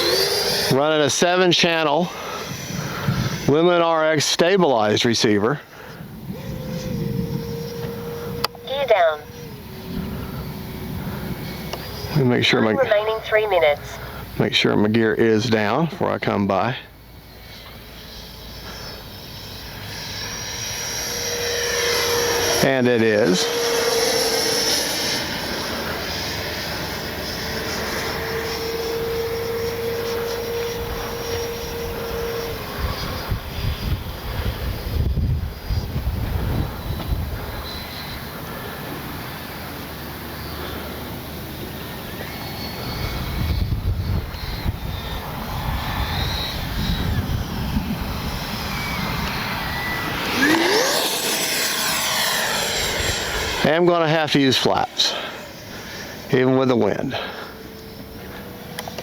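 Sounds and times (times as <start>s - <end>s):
model jet fan whining: 0.0s - 59.0s
wind rumbling on microphone: 2.2s - 3.6s, 5.4s - 13.1s, 19.2s - 39.2s, 42.6s - 56.2s
rushing air: 42.9s - 58.8s.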